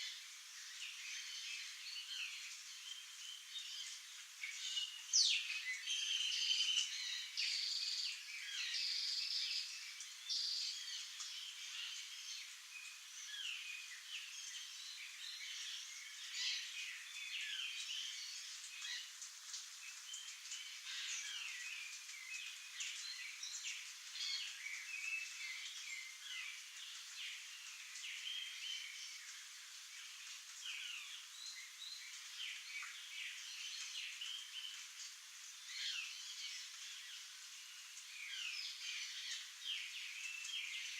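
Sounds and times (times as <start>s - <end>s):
birds chirping and trilling: 19.9s - 40.9s.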